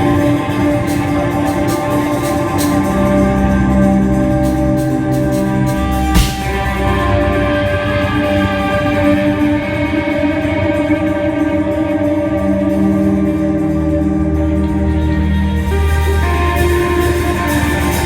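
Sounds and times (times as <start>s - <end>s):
live band playing: 0.0s - 18.0s
steady bass: 2.3s - 18.0s.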